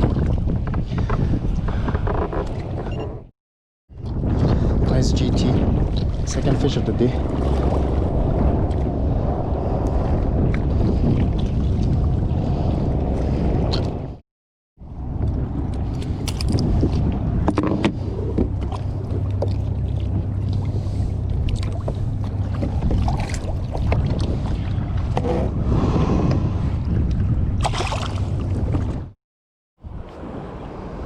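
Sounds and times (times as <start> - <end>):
wind buffeting microphone: 0.0 - 3.0, 3.9 - 14.2, 14.8 - 29.2
water splashing: 18.6 - 24.7, 26.0 - 29.1.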